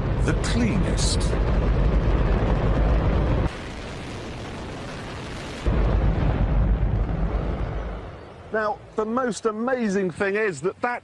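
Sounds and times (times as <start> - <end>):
rocket engine roaring: 0.0 - 8.5.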